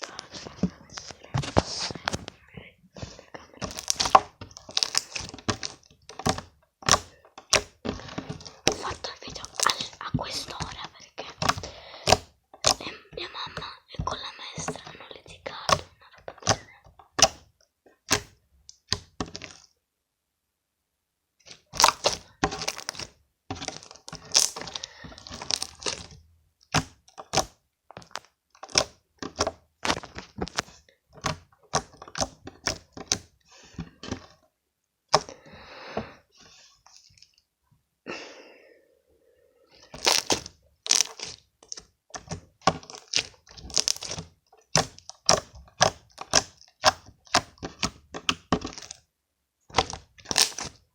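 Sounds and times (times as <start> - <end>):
slime squishing with air pops: 3.0 - 19.6, 21.5 - 34.3, 39.9 - 49.0, 49.7 - 50.8.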